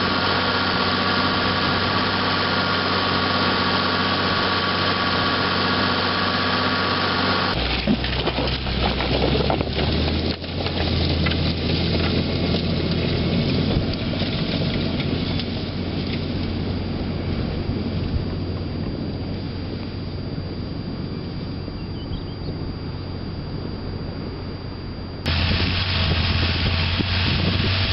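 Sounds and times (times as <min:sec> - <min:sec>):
tractor engine running: 0:00.0 - 0:24.5, 0:25.2 - 0:27.9.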